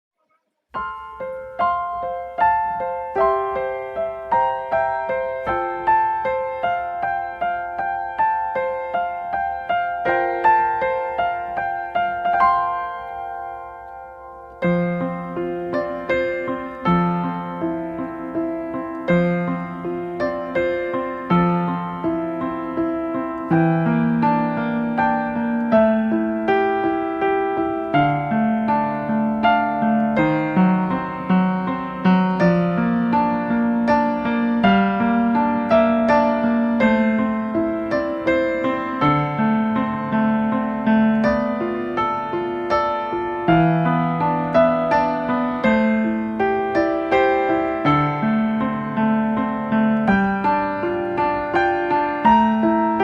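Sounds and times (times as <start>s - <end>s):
gentle piano melody: 0.2s - 53.0s.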